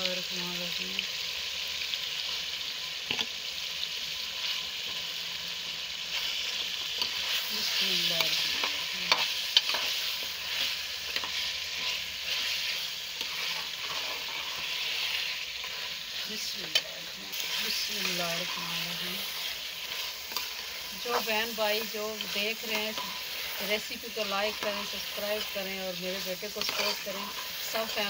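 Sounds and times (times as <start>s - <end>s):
food sizzling in pot: 0.0s - 28.0s
metal spoon scraping pot: 7.0s - 21.4s, 22.1s - 25.6s, 26.2s - 28.0s.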